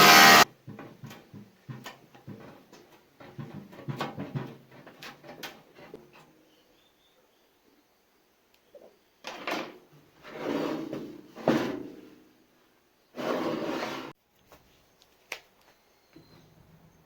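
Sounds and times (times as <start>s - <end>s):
scraping and knocking handling noises: 0.4s - 6.3s.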